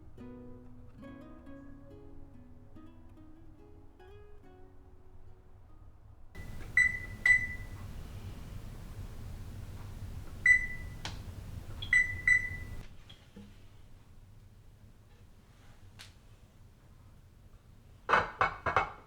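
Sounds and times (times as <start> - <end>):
short electronic beeps: 6.4 - 12.8.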